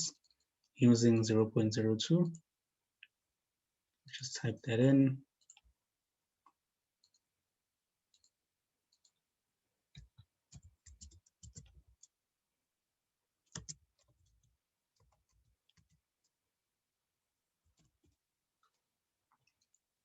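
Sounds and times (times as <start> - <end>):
keyboard and mouse clicking: 5.4 - 5.7, 8.1 - 9.2, 13.5 - 16.3.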